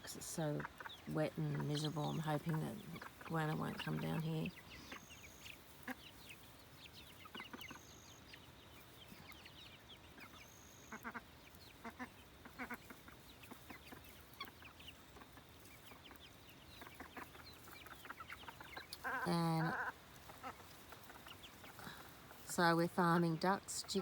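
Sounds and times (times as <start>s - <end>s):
chickens clucking: 0.0s - 24.0s
chicks peeping: 0.0s - 24.0s.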